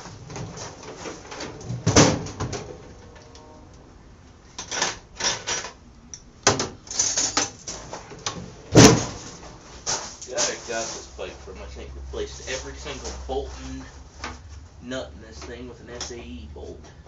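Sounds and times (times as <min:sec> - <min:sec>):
tools knocking and clattering: 0:06.4 - 0:09.3.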